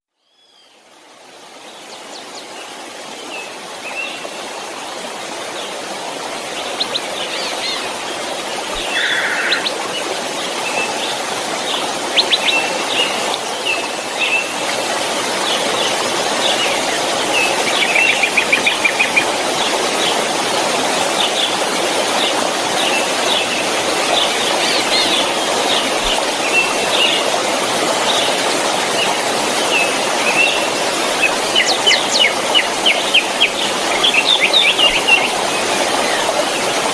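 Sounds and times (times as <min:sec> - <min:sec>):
waterfall rushing: 0:00.8 - 0:36.9
birds chirping: 0:06.4 - 0:14.6, 0:29.0 - 0:36.9.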